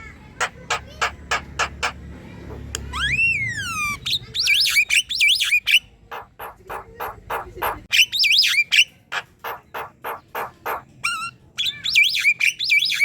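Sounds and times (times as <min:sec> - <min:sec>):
bird chattering song: 0:00.2 - 0:13.0.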